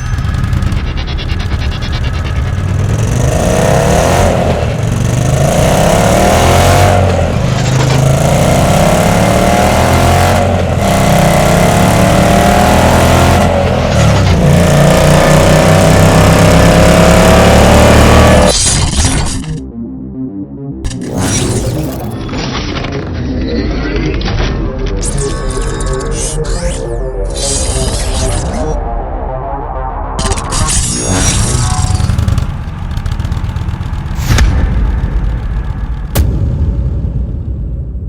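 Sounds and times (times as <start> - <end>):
motorcycle engine accelerating: 0.0 - 18.6, 30.6 - 36.5.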